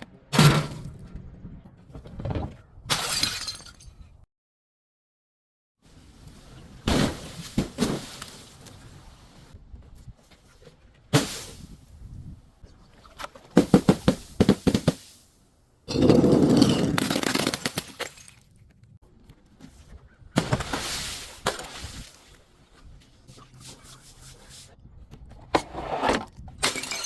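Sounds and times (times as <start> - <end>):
glass bottles being crushed: 2.9 - 4.0, 15.9 - 18.5, 26.6 - 27.0.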